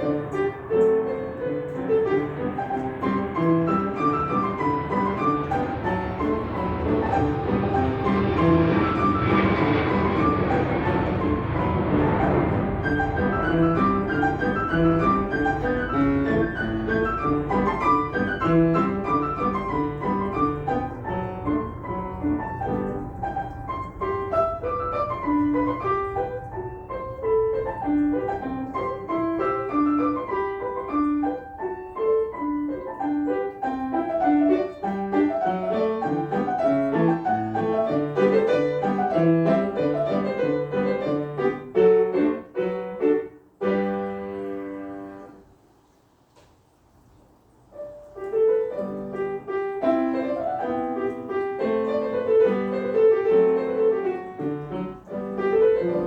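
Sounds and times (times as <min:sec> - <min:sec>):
low rumble: 0:00.0 - 0:30.8
piano melody: 0:00.0 - 0:45.6, 0:47.6 - 0:56.0.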